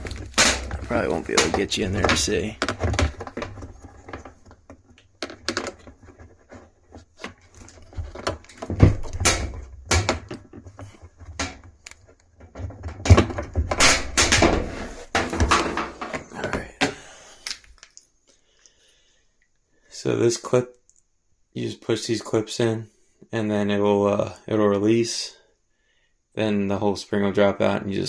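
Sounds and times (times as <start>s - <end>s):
knocks clicks and scrapes: 0.0s - 17.1s.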